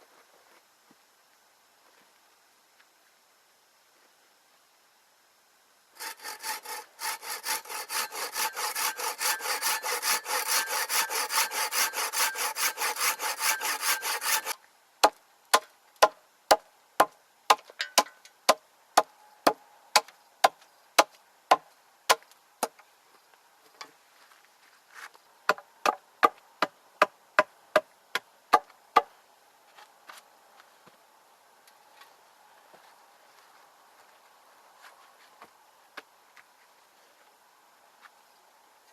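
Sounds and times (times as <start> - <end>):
hand saw cutting wood: 6.0 - 14.6.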